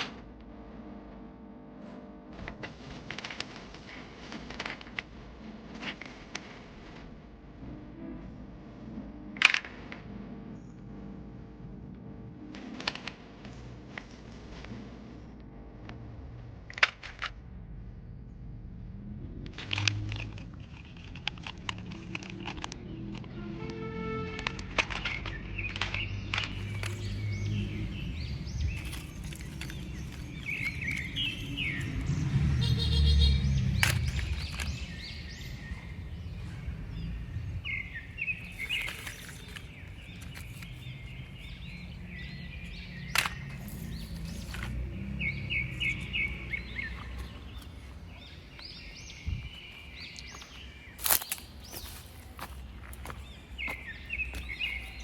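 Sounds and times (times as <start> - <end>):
outdoor background noise: 0.0 - 55.0
low rumble: 15.8 - 22.0
small birds chirping: 24.9 - 55.0.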